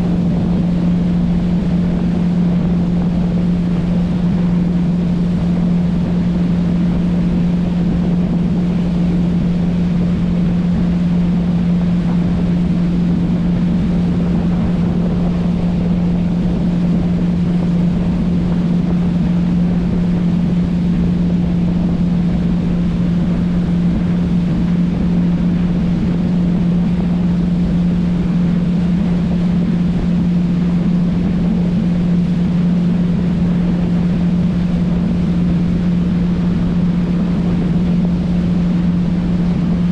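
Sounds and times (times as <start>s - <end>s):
motorboat engine drone: 0.0s - 39.9s.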